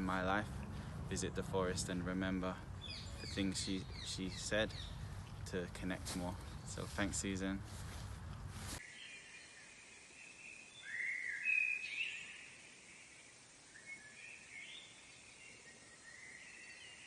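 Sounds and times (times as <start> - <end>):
faint outdoor hiss: 0.0 - 17.0
songbird warbling: 2.7 - 5.4, 10.4 - 13.1.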